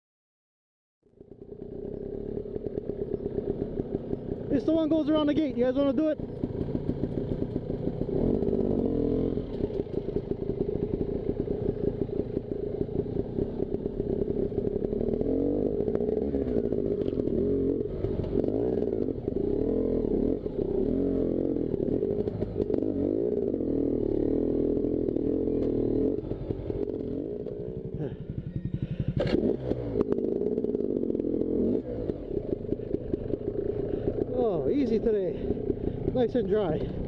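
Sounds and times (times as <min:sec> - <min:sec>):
dirt bike engine revving: 0:01.3 - 0:37.0.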